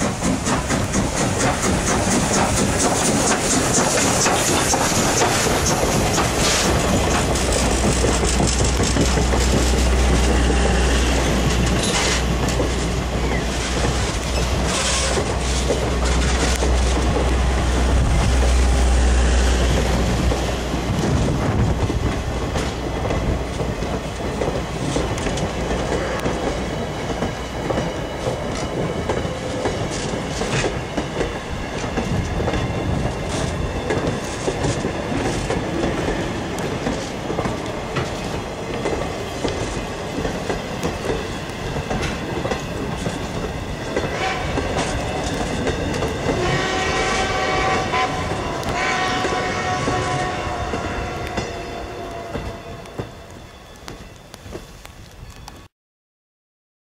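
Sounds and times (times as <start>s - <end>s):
wheels clicking over rail joints: 0.0s - 18.5s, 19.6s - 51.6s
steam locomotive running: 0.0s - 55.7s
steam whistle long blast: 44.1s - 44.9s, 46.3s - 53.4s.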